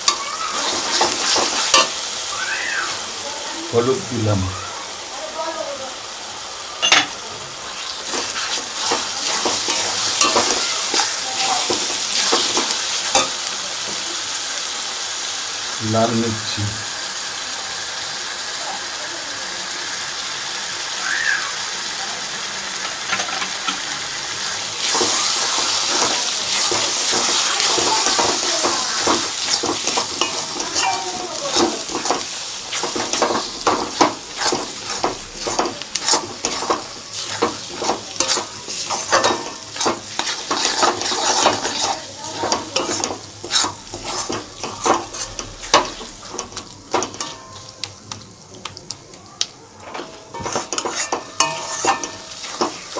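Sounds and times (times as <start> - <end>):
metal spatula scraping a pan: 0.0 - 2.1, 7.8 - 13.5, 24.8 - 47.7, 49.8 - 52.9
masala sizzling in oil: 0.0 - 52.9.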